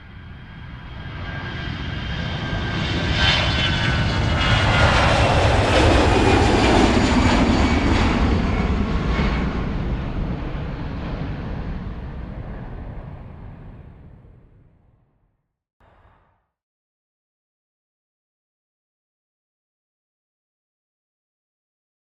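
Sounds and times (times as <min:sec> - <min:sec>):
jet airliner flying overhead: 0:00.0 - 0:15.2.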